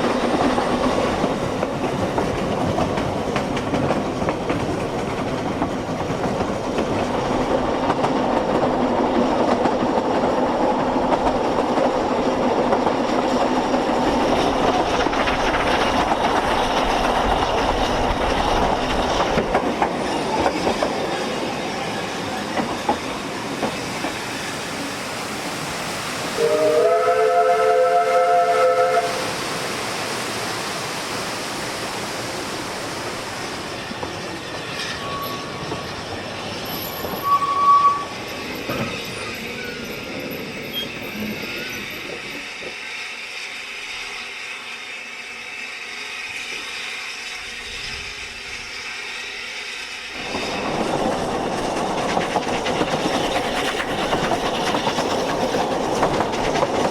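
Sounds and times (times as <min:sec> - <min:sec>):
train rumbling and clattering: 0:00.0 - 0:56.9
locomotive whistle chord: 0:26.4 - 0:29.2, 0:37.2 - 0:38.1.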